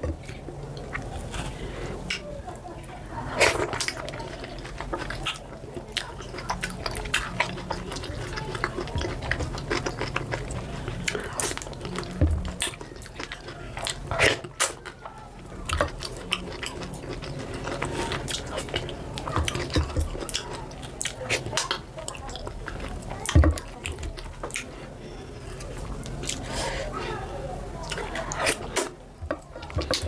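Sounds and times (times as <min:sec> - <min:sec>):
wet mouth smacks and chewing: 0:03.4 - 0:15.0, 0:15.7 - 0:22.9.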